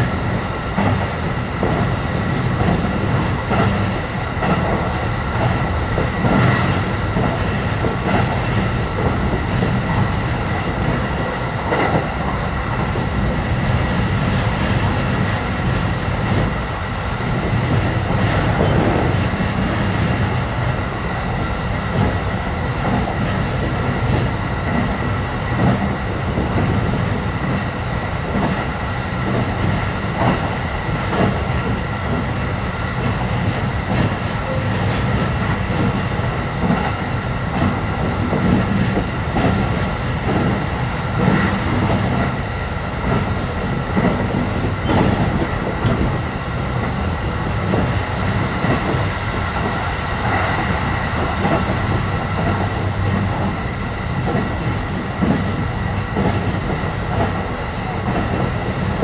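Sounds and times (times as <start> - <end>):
train running low rumble: 0.0 - 59.0.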